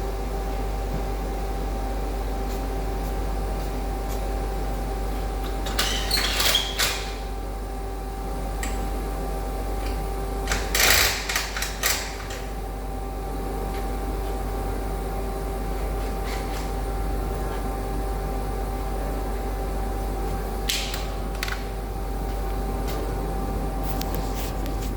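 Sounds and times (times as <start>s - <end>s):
electrical hum: 0.0s - 24.9s
clicking and clattering bursts: 10.5s - 12.4s.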